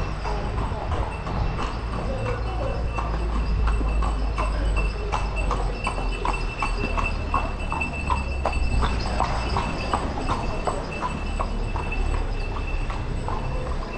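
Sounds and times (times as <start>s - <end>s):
horse hooves clip-clopping: 0.0s - 13.9s.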